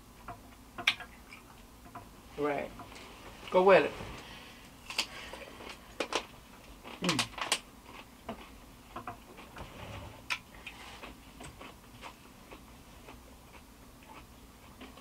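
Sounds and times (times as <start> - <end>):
person chewing: 4.9 - 9.6, 10.2 - 15.0.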